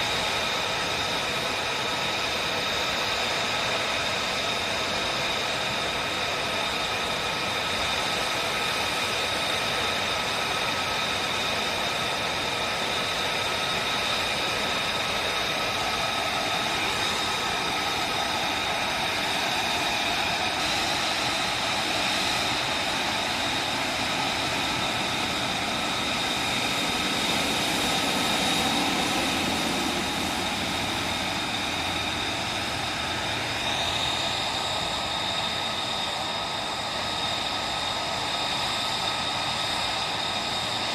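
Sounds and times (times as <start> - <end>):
jet engine running with whine: 0.0 - 40.9.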